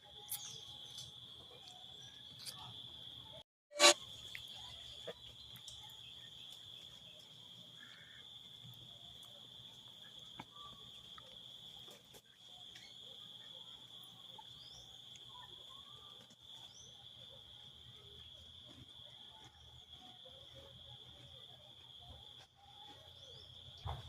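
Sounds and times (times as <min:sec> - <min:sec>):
bird chirps: 0:00.0 - 0:02.7.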